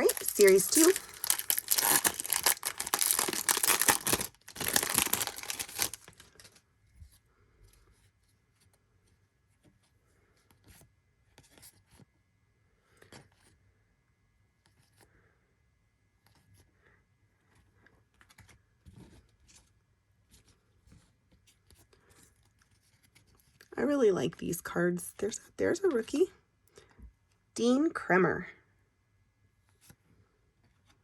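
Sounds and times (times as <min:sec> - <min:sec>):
card pack wrapper tearing: 0:00.0 - 0:06.4.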